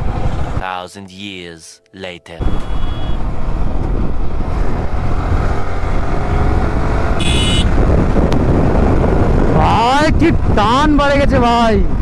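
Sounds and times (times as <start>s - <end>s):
wind rush on microphone: 0.0s - 0.6s, 2.4s - 12.0s
high-pitched beep: 2.5s - 3.2s
motorcycle engine running: 2.5s - 10.7s.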